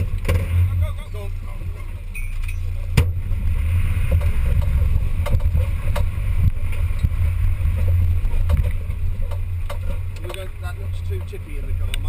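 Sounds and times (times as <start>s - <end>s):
off-road vehicle rumbling: 0.0s - 12.0s
knocks and rattles: 4.0s - 6.2s, 7.7s - 10.5s.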